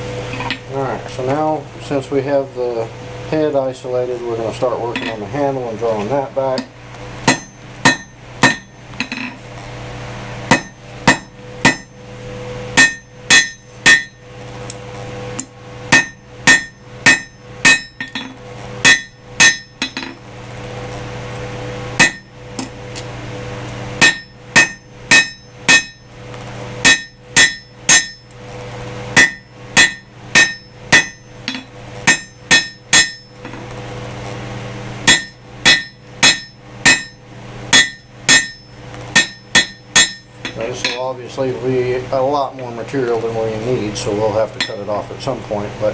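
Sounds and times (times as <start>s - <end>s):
steady low hum: 0.0s - 45.9s
hammer ringing on anvil: 7.3s - 9.3s, 10.5s - 12.0s, 12.8s - 14.2s, 15.9s - 20.2s, 22.0s - 22.4s, 24.0s - 26.1s, 26.8s - 28.3s, 29.2s - 33.6s, 35.1s - 41.1s, 44.6s - 45.0s.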